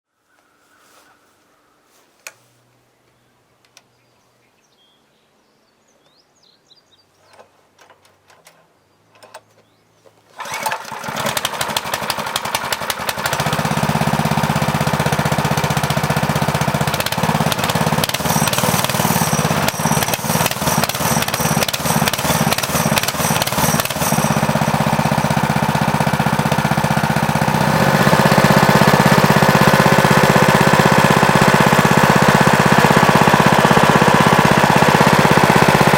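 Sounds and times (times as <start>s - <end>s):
faint clicks: 3.0s - 3.9s
mini bike engine starting and running: 7.2s - 35.9s.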